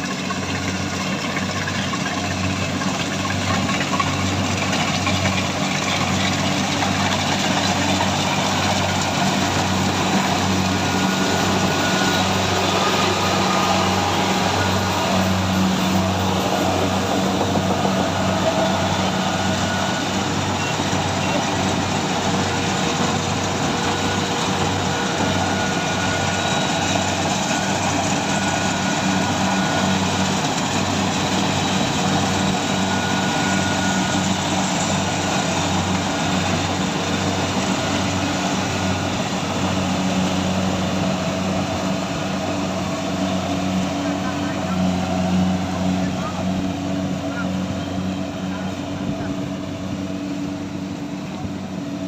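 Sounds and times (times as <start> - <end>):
harvesting machine engine running: 0.0 - 52.0.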